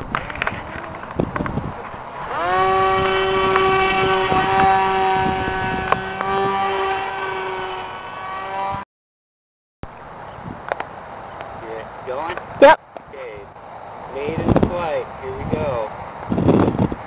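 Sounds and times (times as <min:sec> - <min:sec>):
model airplane electric motor: 0:02.2 - 0:08.8.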